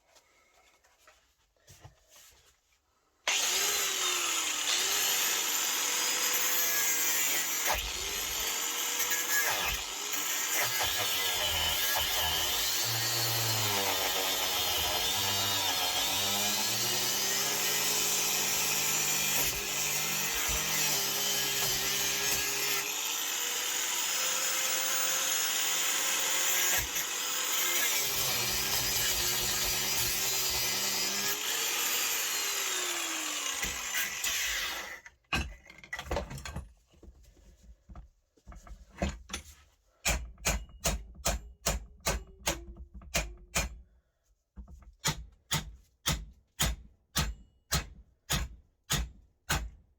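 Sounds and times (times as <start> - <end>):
power tool cutting metal: 3.3 - 35.1.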